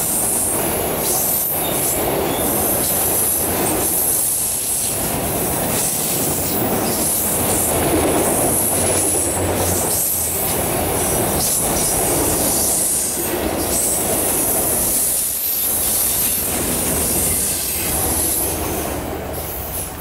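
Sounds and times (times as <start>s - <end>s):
freight train rolling past: 0.0s - 20.0s
steel wheels squealing on rails: 0.0s - 20.0s.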